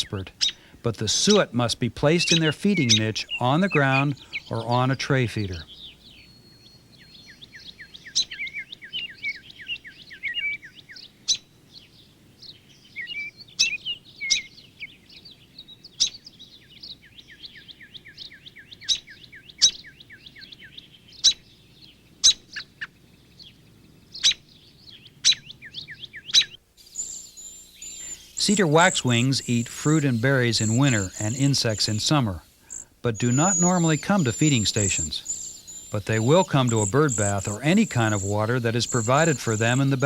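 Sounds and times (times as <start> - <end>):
songbirds chirping: 0.0 - 40.0
sharp bird chip notes: 2.2 - 4.8, 26.3 - 40.0.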